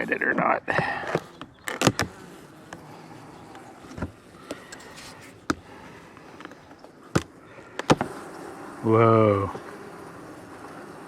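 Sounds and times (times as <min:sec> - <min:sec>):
honeybees buzzing: 0:00.0 - 0:11.0
hive clicks and knocks: 0:00.7 - 0:08.2.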